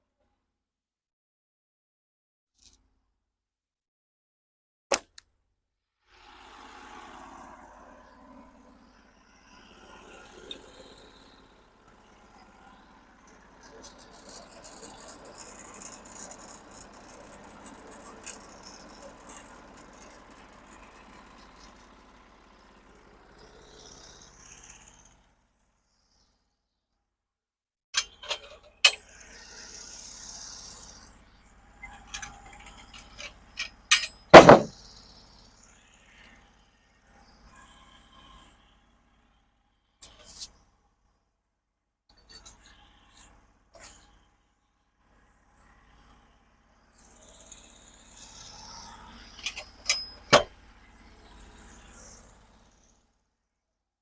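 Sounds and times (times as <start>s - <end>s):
metallic clanks: 28.0s - 29.0s, 32.1s - 34.7s, 49.4s - 50.5s
scraping and handling noise: 28.0s - 29.0s, 32.0s - 34.7s, 49.4s - 50.5s
heavy thump: 34.4s - 34.7s
lumber knocking and clattering: 34.4s - 34.7s.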